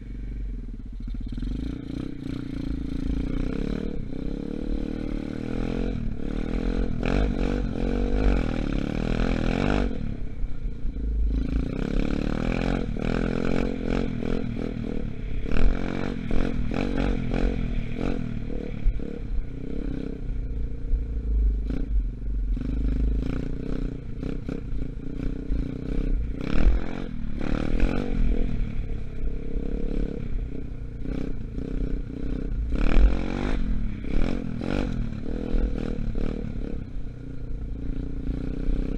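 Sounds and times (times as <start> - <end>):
dirt bike engine revving: 1.1 - 10.0, 22.6 - 28.8, 31.0 - 36.8.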